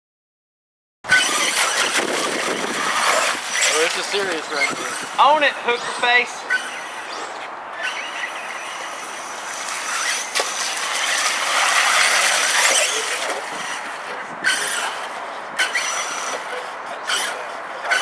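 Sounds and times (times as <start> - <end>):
electric motors whining: 1.1 - 18.0
wheels churning mud: 1.1 - 18.0.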